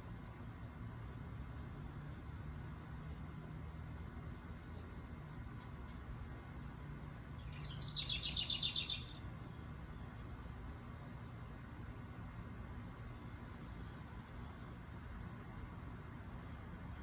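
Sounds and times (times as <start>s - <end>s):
distant traffic rumble: 0.0s - 17.0s
bird trilling: 7.5s - 9.1s.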